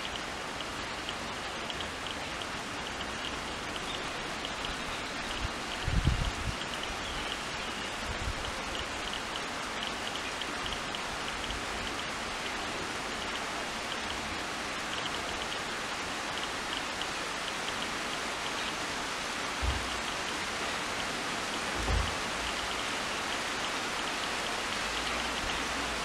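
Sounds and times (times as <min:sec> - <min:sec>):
rain on foliage: 0:00.0 - 0:26.0
soft low thump: 0:19.6 - 0:19.9, 0:21.8 - 0:22.2.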